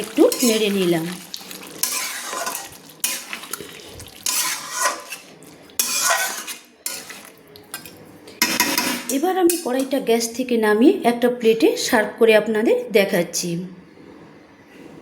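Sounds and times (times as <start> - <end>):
faint sizzle from pan: 0.0 - 10.0
spatula scraping and stirring curry: 0.2 - 10.0.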